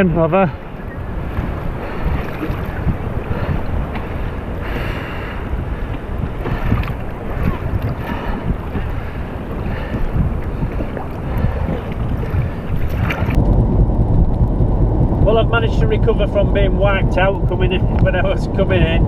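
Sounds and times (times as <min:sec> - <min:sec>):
waves washing around kayak: 0:00.0 - 0:13.4
surf: 0:00.0 - 0:13.5
wind buffeting microphone: 0:00.0 - 0:19.0.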